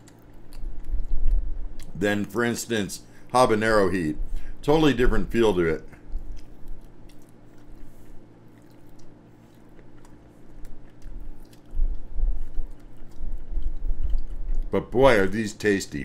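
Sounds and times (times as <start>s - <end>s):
person chewing wetly: 0.0s - 2.0s, 5.9s - 14.7s.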